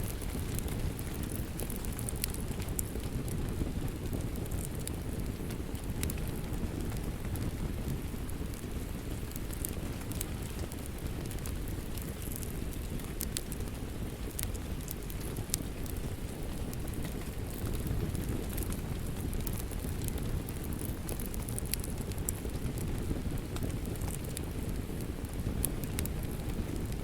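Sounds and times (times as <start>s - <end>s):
fire crackling and popping: 0.0s - 27.0s
steady rain: 0.0s - 27.0s.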